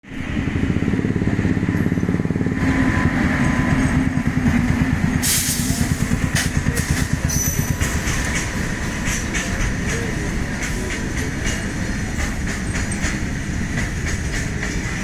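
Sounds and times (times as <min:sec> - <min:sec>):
freight train rumbling past: 0:00.0 - 0:15.0
loud hiss: 0:05.2 - 0:06.2.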